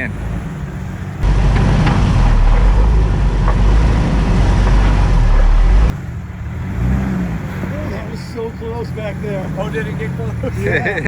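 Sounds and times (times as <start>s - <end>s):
off-road vehicle engine rumbling: 0.0s - 11.0s.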